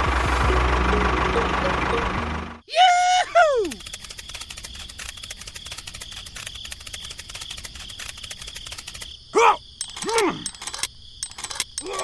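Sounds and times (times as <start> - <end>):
insect chorus buzzing and ticking: 3.5 - 12.0.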